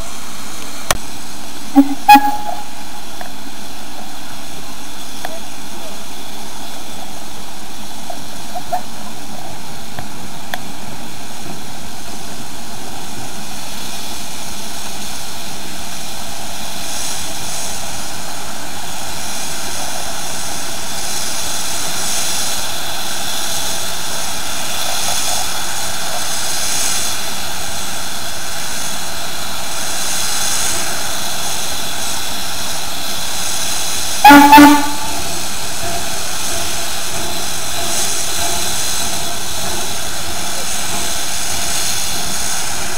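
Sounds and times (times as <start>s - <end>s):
steam locomotive hiss and rumble: 0.0s - 42.9s
steam whistle toots: 1.8s - 3.2s, 34.2s - 41.9s.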